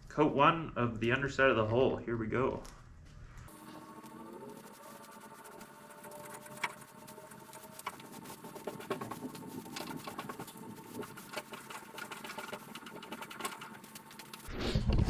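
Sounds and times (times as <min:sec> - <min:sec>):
paintbrush brushing: 0:03.4 - 0:14.5.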